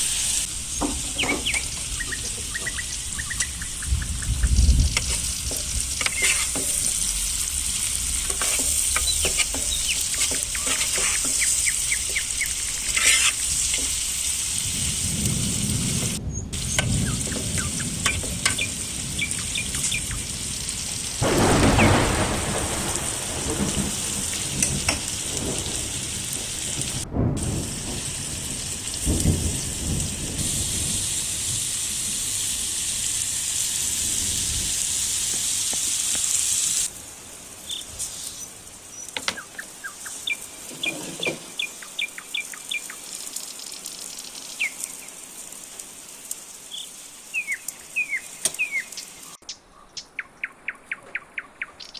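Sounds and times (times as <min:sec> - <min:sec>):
food sizzling in a pan: 0:00.0 - 0:49.4
birds chirping: 0:00.6 - 0:04.7, 0:08.9 - 0:13.3, 0:16.2 - 0:20.6, 0:21.2 - 0:23.0, 0:37.5 - 0:45.3, 0:46.7 - 0:51.9.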